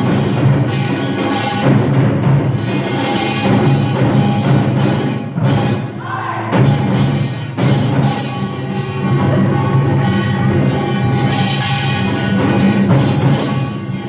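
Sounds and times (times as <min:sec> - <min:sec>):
barrel drum: 0:00.0 - 0:11.2.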